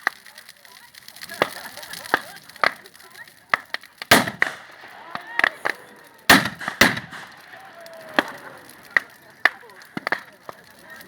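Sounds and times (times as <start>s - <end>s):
bonfire crackling: 0.0s - 11.0s
burning wood popping: 0.0s - 11.0s.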